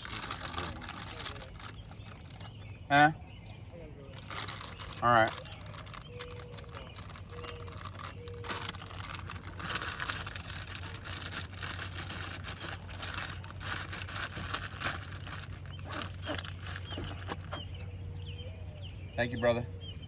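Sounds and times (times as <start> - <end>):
crinkling rustling handling noise: 0.0 - 2.8, 4.1 - 17.8.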